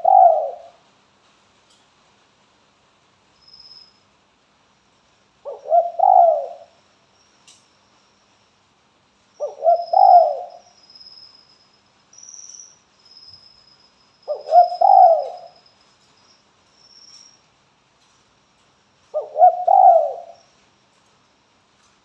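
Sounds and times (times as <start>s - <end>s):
dove cooing: 0.0s - 0.8s, 5.5s - 6.7s, 9.4s - 10.6s, 14.3s - 15.6s, 19.1s - 20.4s.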